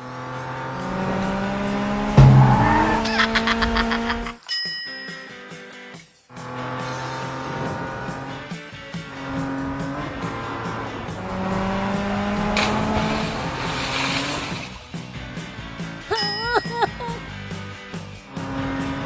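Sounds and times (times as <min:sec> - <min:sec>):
cartoon race car engines revving: 0:00.0 - 0:04.4, 0:09.2 - 0:14.7
hissing tyre squeal: 0:00.8 - 0:03.6
background music: 0:05.2 - 0:19.0.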